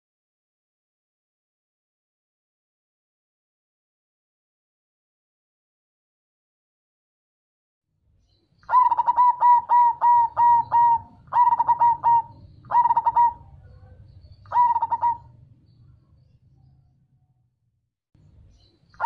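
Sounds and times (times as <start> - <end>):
dove cooing: 8.6 - 15.5.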